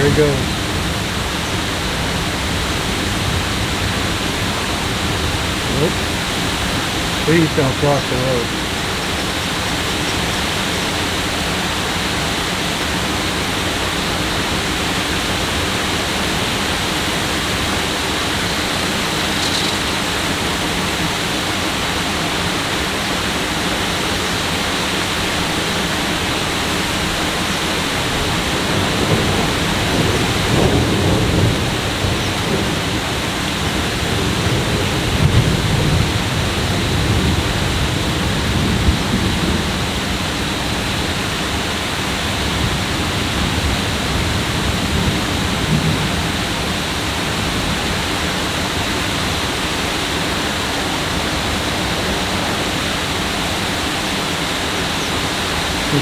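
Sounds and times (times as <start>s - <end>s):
heavy rain hissing: 0.0s - 56.0s
low thunder rumbling: 28.1s - 40.0s.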